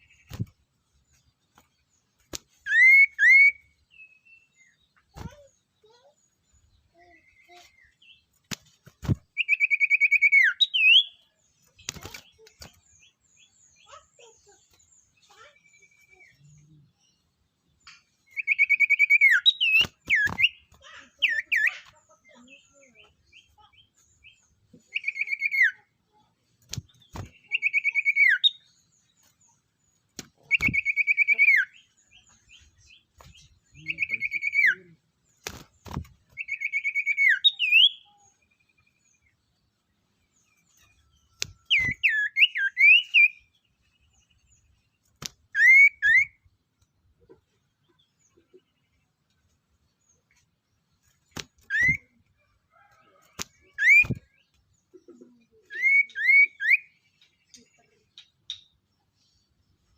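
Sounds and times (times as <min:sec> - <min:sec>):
songbird trilling: 0:09.4 - 0:11.2, 0:27.4 - 0:28.7, 0:30.4 - 0:34.9.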